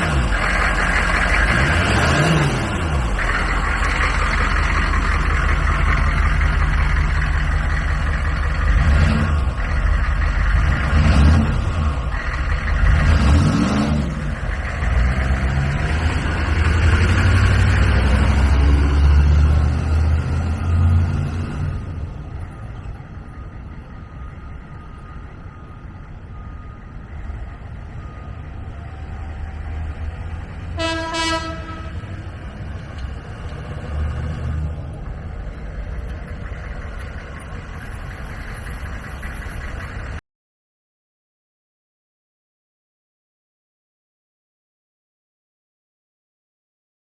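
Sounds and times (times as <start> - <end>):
diesel engine running: 0.0 - 40.2
horn toot: 30.8 - 32.3.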